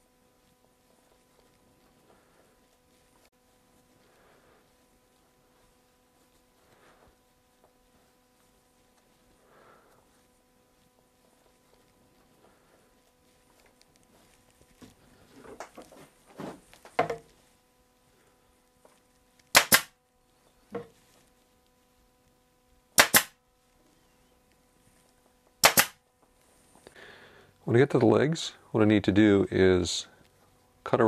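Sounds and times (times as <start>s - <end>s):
pneumatic stapler firing: 19.5s - 19.9s, 23.0s - 23.4s, 25.6s - 26.0s.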